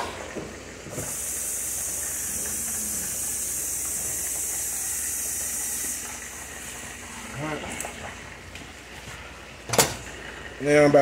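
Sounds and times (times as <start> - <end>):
chicken sizzling in hot oil: 1.0 - 7.5.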